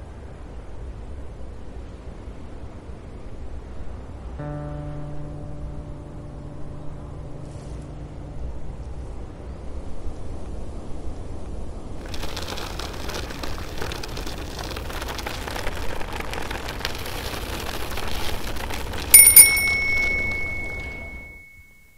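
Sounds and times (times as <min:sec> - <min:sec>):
bicycle rolling past: 0:12.0 - 0:21.9
bicycle bell ringing: 0:19.1 - 0:21.9.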